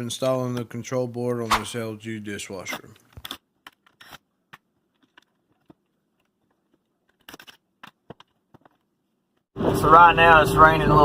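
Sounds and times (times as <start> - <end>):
faint clicks and taps of parts: 2.9 - 9.4.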